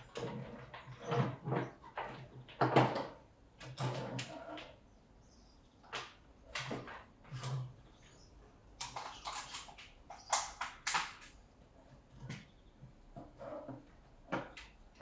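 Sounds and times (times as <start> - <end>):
plastic knocks clicks and rattles: 0.0 - 4.8, 5.8 - 7.7, 8.8 - 11.4.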